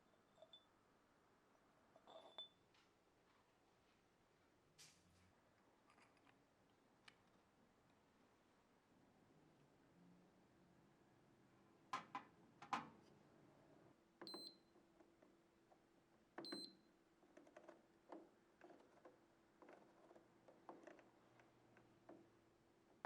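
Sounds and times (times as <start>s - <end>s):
faint clicks and taps: 4.8s - 8.0s, 14.2s - 23.0s.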